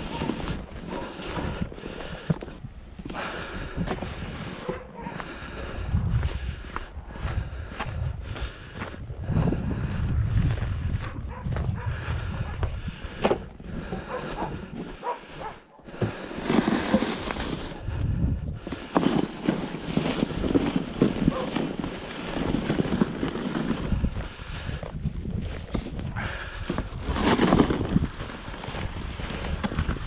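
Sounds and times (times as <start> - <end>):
snow shovel scraping snow: 0.0 - 2.3, 14.1 - 24.2, 25.5 - 30.0.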